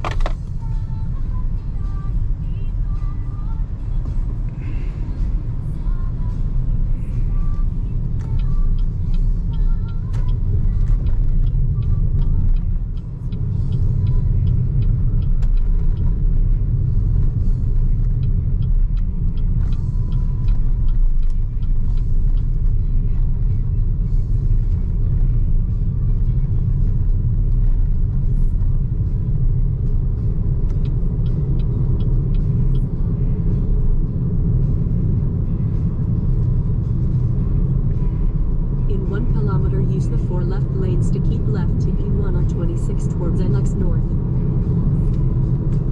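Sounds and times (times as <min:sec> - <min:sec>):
light ticks: 0:05.7 - 0:38.2.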